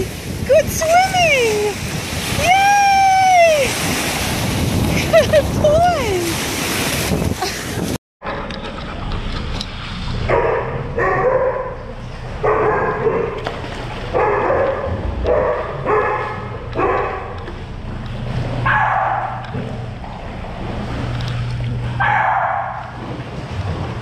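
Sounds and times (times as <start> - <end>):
dog barking: 10.3 - 13.4, 14.2 - 17.3, 18.7 - 19.5, 22.0 - 22.9.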